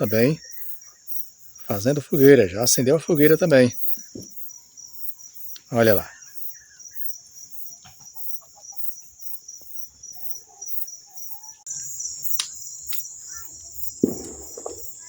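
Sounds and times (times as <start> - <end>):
insects chirring: 0.0 - 15.0
sharp clicks: 12.3 - 13.1.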